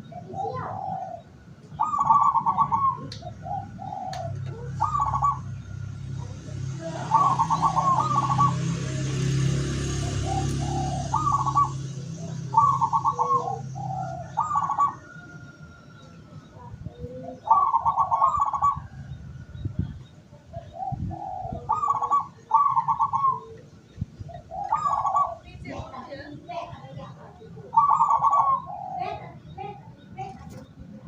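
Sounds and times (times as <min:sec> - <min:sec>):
doves cooing: 0:00.0 - 0:31.0.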